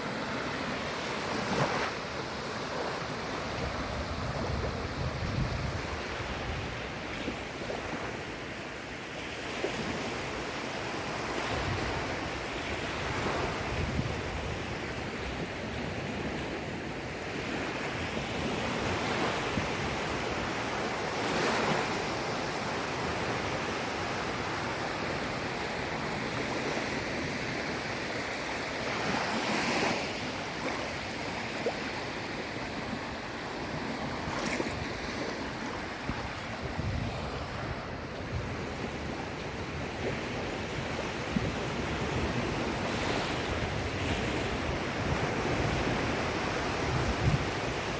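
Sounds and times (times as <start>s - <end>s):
sea waves breaking on shore: 0.0s - 47.9s
wind buffeting microphone: 3.5s - 7.1s, 11.5s - 16.3s, 34.0s - 47.9s.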